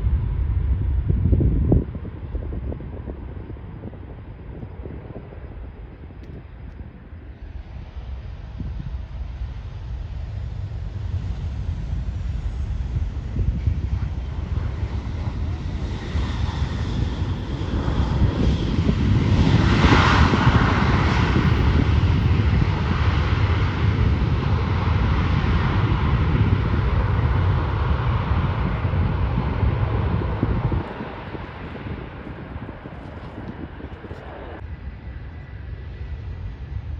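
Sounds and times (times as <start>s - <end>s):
jet engines passing: 0.0s - 36.9s.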